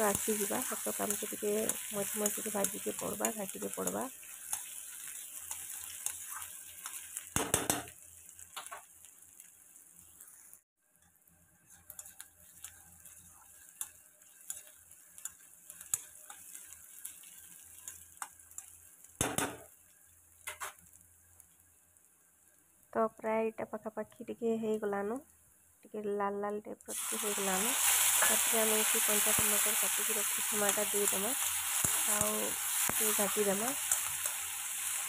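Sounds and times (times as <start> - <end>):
onions sizzling in hot oil: 0.0 - 26.1, 26.9 - 35.0.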